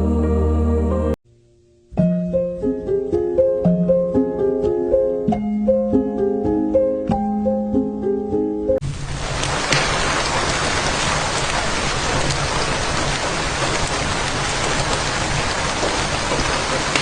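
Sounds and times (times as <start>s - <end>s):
heavy rain falling: 8.8s - 17.0s.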